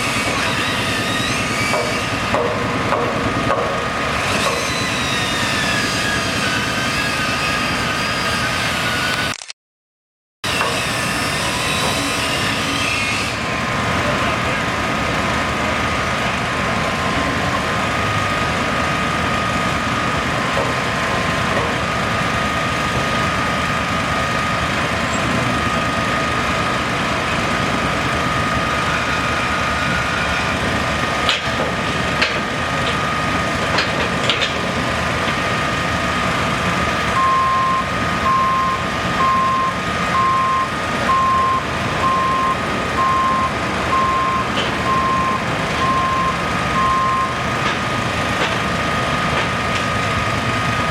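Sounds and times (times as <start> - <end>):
heavy vehicle engine running: 0.0 - 9.4, 10.4 - 50.9
sharp knocks: 1.7 - 4.8
reversing alarm beeping: 10.6 - 13.4, 16.5 - 18.3, 37.1 - 47.9.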